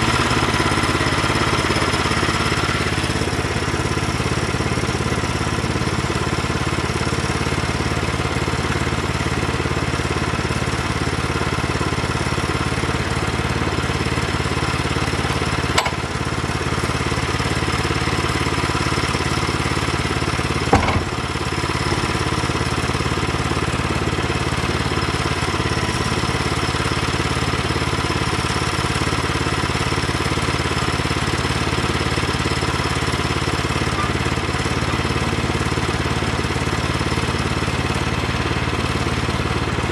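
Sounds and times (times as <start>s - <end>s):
engine running steadily: 0.0s - 39.9s
short sharp knocks: 15.8s - 16.2s, 20.7s - 21.3s.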